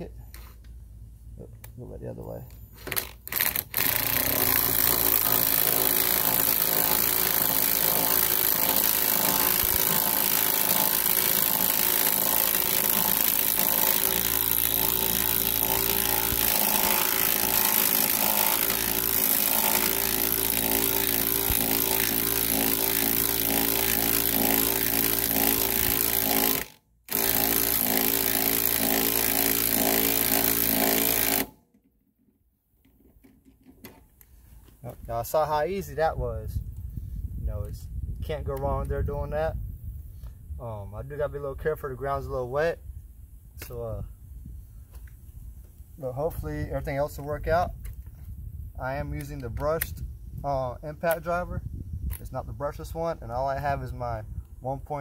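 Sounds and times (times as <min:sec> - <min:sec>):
impact driver hammering: 0:02.9 - 0:31.6.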